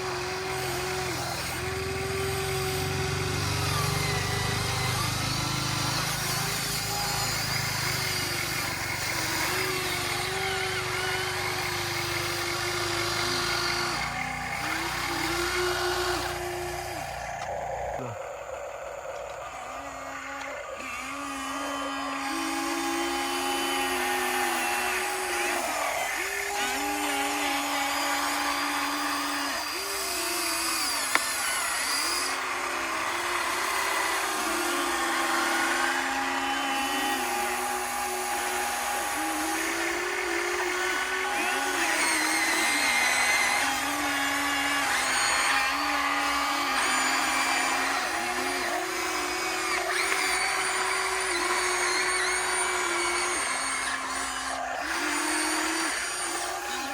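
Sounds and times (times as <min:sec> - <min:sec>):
model excavator motors whining: 0:00.0 - 0:56.9.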